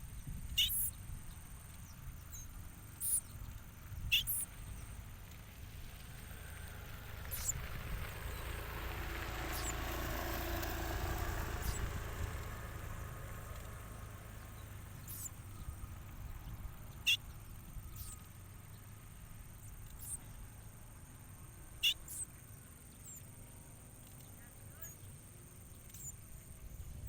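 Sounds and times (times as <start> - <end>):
distant vehicle passing: 0.0 - 27.0
high bird chirps: 0.6 - 1.0, 1.7 - 4.9, 7.3 - 7.6, 9.4 - 9.9, 11.5 - 12.0, 14.5 - 18.8, 19.5 - 20.4, 21.8 - 23.3, 24.0 - 26.2.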